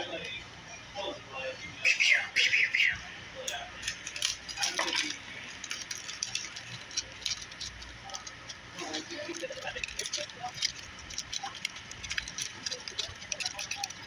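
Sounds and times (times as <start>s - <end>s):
aluminum foil crinkling: 3.7s - 14.0s.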